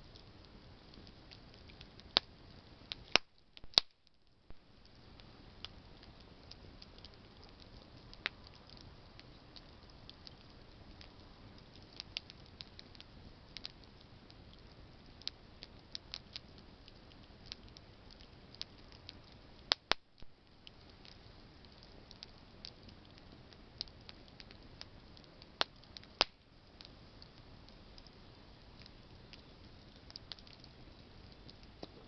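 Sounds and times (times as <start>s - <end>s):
campfire crackling: 0.0s - 32.0s
loud sharp fire pops: 3.1s - 4.0s.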